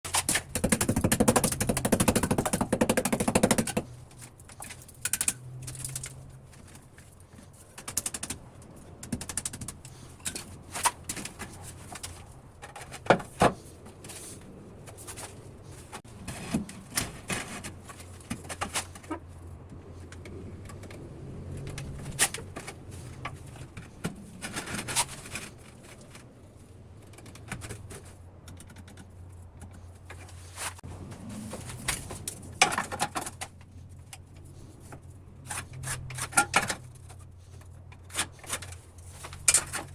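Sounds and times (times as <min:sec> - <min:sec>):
sharp clicks and knocks: 0:00.1 - 0:14.1.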